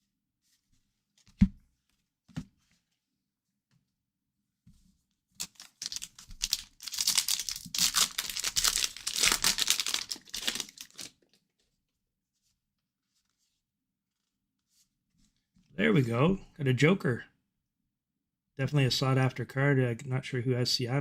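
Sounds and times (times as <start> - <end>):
wrapper tearing and crinkling: 5.4 - 11.2.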